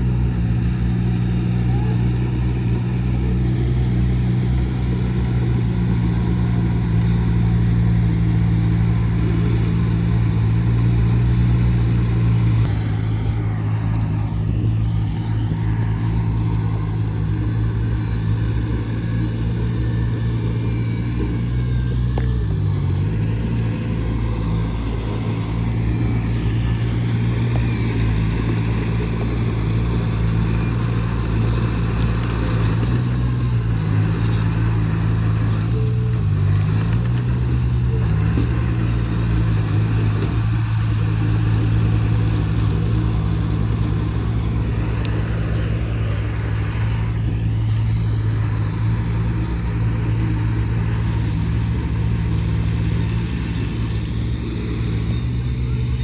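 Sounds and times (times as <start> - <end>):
heavy machinery diesel engine: 0.0 - 56.0.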